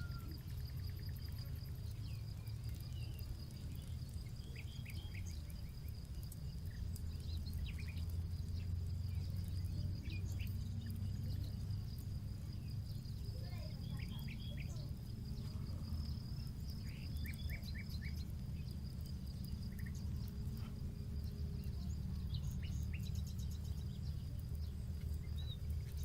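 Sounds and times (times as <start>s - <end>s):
bird chirps: 0.0s - 26.0s
campfire crackling: 0.0s - 26.0s
high insect drone: 0.0s - 26.0s
low steady rumble: 0.0s - 26.0s.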